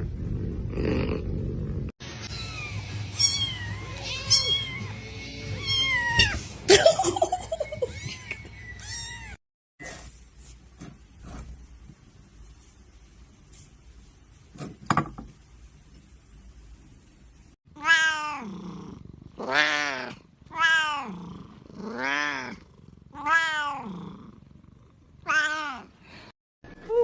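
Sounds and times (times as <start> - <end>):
cat meowing loudly: 2.3 - 5.0, 17.8 - 18.4.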